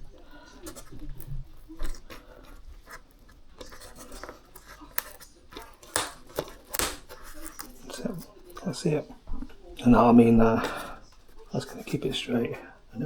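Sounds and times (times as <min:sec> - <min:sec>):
small clicks and scratching: 0:00.0 - 0:08.8.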